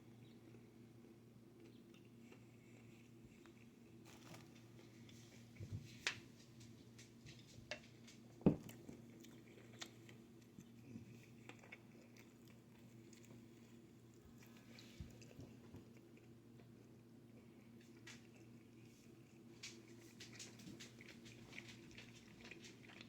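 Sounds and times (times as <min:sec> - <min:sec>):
person chewing: 0:08.7 - 0:23.0.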